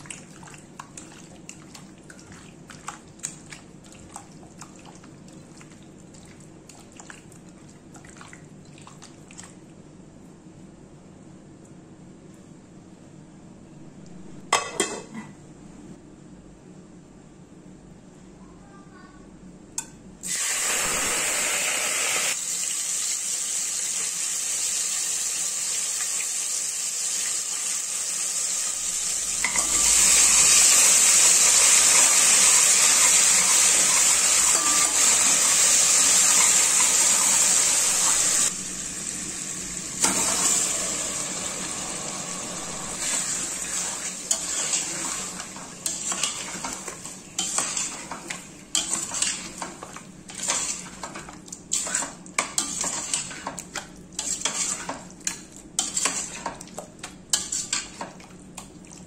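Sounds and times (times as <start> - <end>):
food sizzling in hot oil: 20.2 - 51.0
metal spoon scraping a pot: 54.2 - 55.0, 57.3 - 57.9.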